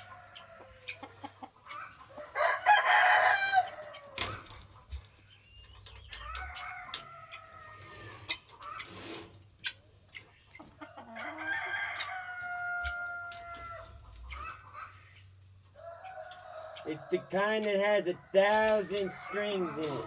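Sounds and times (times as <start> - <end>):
rooster crowing: 2.2 - 4.2, 11.1 - 13.8.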